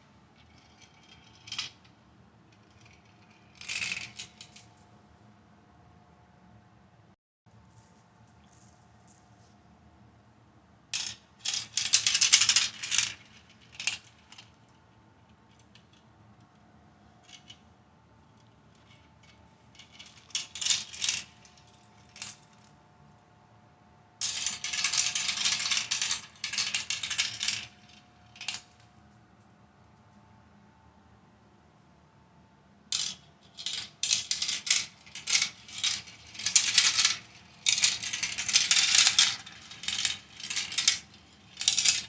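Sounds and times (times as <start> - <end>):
marbles clattering down plastic track: 0.4 - 1.8, 2.6 - 4.6, 11.0 - 14.5, 19.8 - 22.4, 24.2 - 28.8, 33.0 - 42.0.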